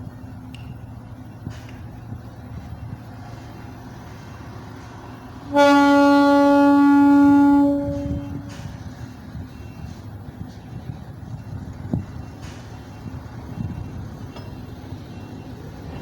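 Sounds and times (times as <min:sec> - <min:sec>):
ship's horn blast: 0:05.4 - 0:08.7.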